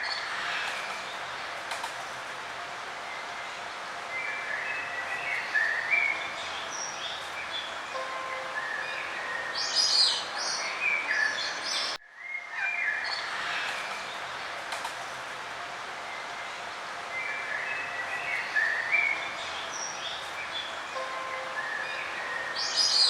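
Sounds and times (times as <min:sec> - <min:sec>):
songbirds singing: 0:03.1 - 0:14.4, 0:16.1 - 0:23.0.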